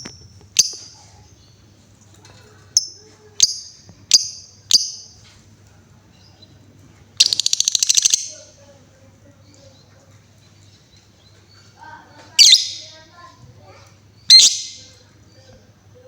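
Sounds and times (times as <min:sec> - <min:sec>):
lovebird chattering trill: 0:02.8 - 0:05.2, 0:07.2 - 0:08.6, 0:12.4 - 0:13.1, 0:14.2 - 0:15.0.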